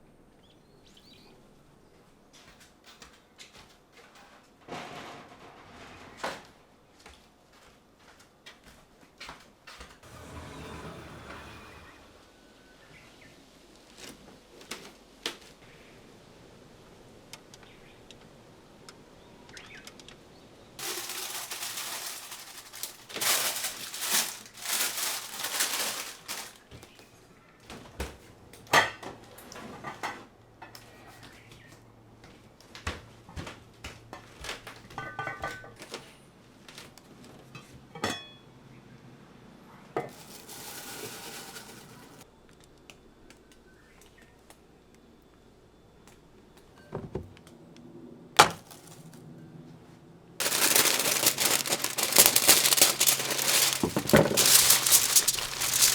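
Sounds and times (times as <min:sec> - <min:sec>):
dishes and cutlery clinking: 0:34.9 - 0:35.8, 0:37.6 - 0:38.4.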